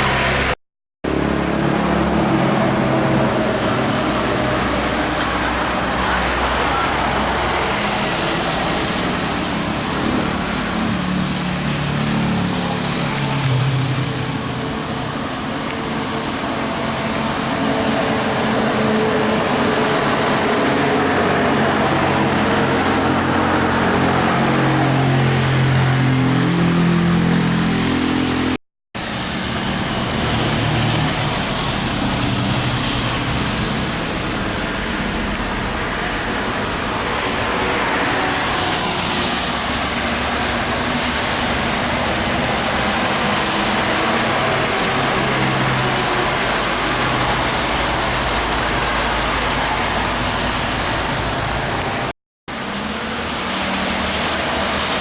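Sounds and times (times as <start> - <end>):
diesel truck engines: 0.0 - 55.0
tyre noise from traffic: 0.0 - 55.0.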